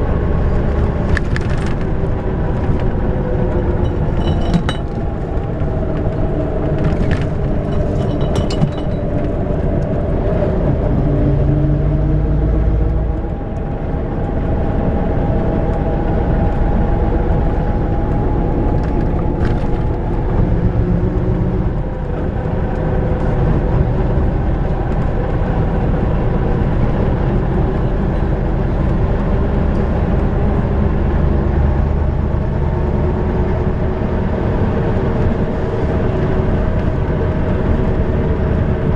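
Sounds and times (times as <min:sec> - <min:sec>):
bus diesel engine rumbling: 0:00.0 - 0:38.9
light rattles: 0:01.1 - 0:09.6.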